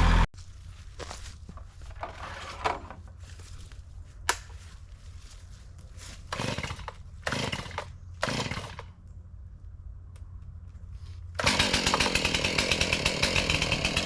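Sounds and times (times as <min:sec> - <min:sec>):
chainsaw running: 0:00.0 - 0:00.3, 0:06.3 - 0:08.9, 0:11.4 - 0:14.0.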